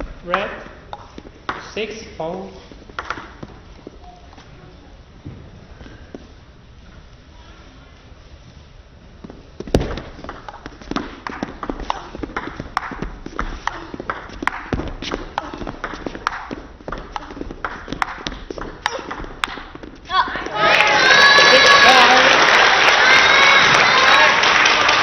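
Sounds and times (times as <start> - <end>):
crowd cheering: 20.1 - 25.0.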